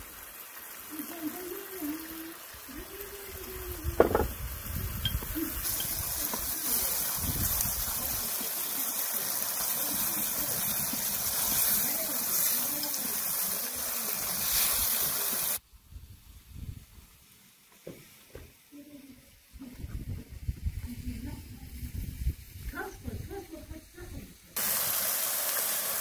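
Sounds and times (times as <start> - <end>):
vegetables sizzling in oil: 0.0 - 15.6, 20.6 - 26.0.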